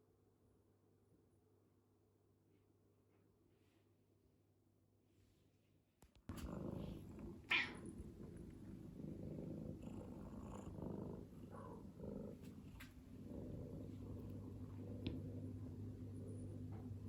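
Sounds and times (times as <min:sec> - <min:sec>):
cat purring: 0:06.3 - 0:17.0.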